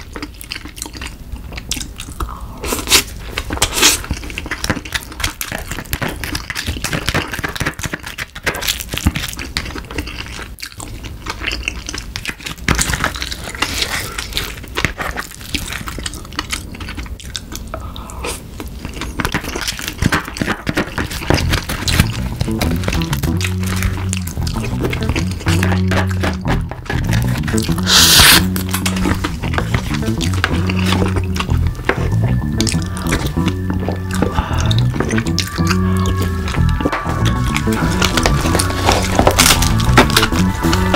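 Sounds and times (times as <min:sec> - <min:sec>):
wet chewing and mouth smacks: 0:00.0 - 0:40.9
wooden spoon scraping crab shell: 0:23.9 - 0:32.1.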